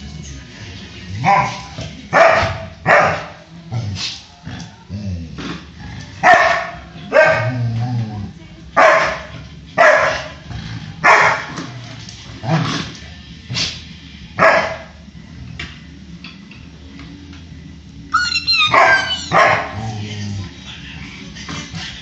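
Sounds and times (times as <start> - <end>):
dog barking: 1.2 - 3.4, 6.2 - 7.6, 8.8 - 10.4, 11.0 - 11.6, 14.4 - 15.0, 18.2 - 19.8
dog yelping: 18.1 - 19.8.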